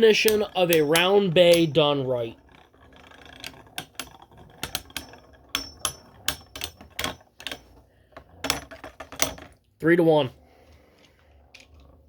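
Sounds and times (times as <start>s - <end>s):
spinning tops clacking together: 0.0s - 7.8s.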